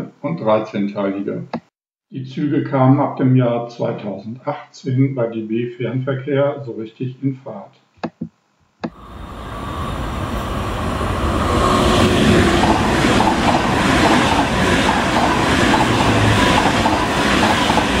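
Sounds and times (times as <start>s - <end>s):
train passing rumble: 9.0s - 18.0s.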